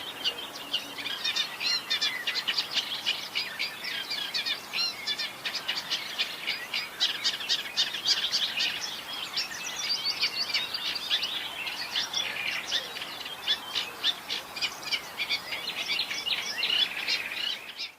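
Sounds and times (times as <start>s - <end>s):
warbler singing: 0.0s - 17.9s.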